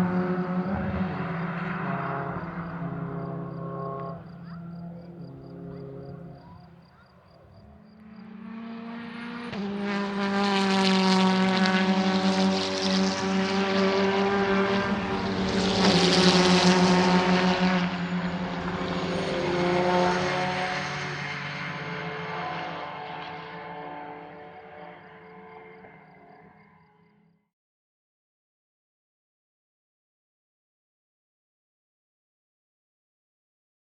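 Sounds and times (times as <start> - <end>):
racing car engine at full throttle: 0.0 - 26.8.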